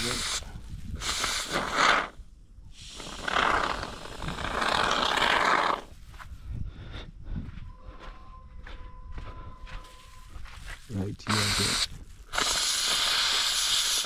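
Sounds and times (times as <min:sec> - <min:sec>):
rough scraping: 0:02.9 - 0:06.0.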